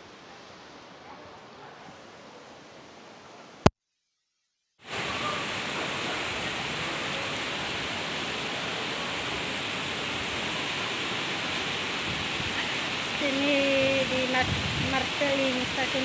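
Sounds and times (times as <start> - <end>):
heavy rain pouring: 4.8 - 16.0.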